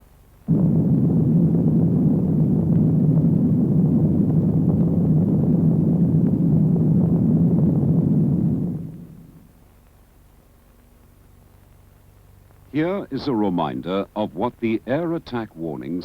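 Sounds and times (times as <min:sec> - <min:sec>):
harsh low electronic drone: 0:00.5 - 0:09.5.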